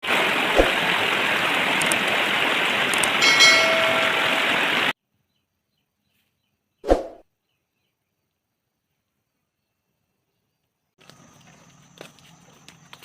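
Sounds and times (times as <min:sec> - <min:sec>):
brief high tone: 0:03.2 - 0:04.6.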